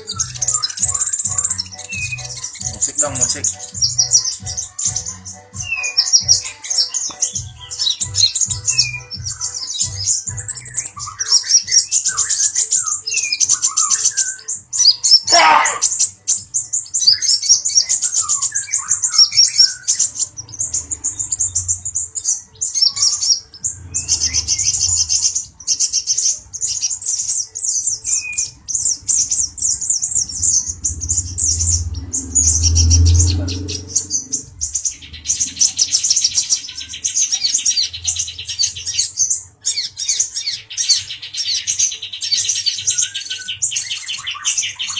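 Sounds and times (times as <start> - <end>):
lower chirping notes: 0.0 - 15.3, 15.9 - 41.0
sunbird twittering song: 0.0 - 44.9
low rumbles: 20.2 - 22.2, 23.6 - 25.5, 28.9 - 36.1.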